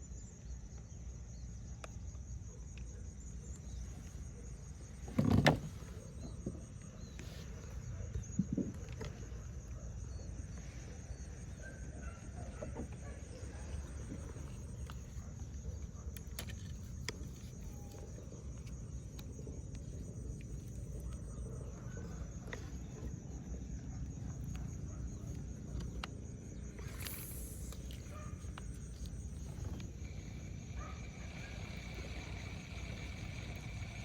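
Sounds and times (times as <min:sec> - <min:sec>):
high insect-like hum: 0:00.0 - 0:34.0.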